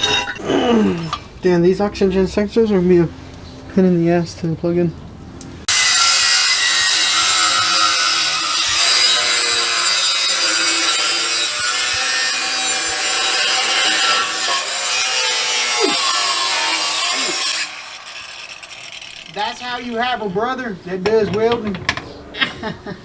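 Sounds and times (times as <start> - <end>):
power tool cutting metal pipe: 5.7 - 20.0.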